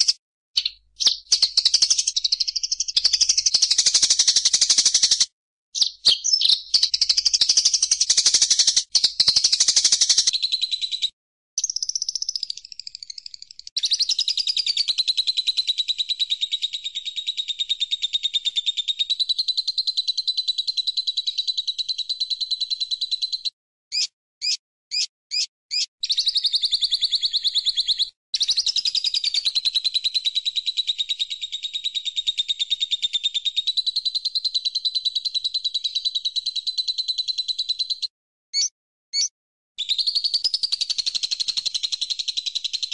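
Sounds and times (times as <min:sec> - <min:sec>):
short bird chirps: 0:00.0 - 0:14.9, 0:21.3 - 0:29.5, 0:30.9 - 0:42.9
bird trilling: 0:23.2 - 0:28.1, 0:38.6 - 0:39.3.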